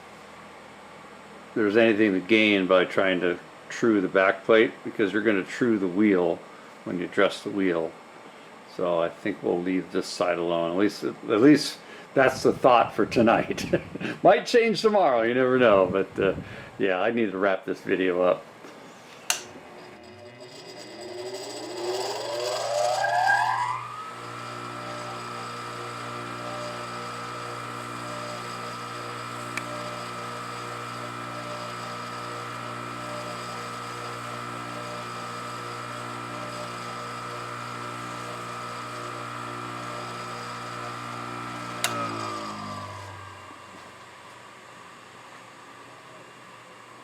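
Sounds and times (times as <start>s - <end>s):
grinder motor whining: 19.3s - 44.5s.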